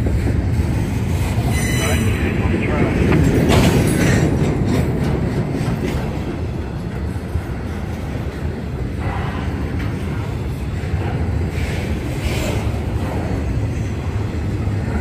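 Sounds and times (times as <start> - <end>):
freight train rumbling: 0.0 - 15.0
wheels clacking over rail joints: 0.0 - 15.0.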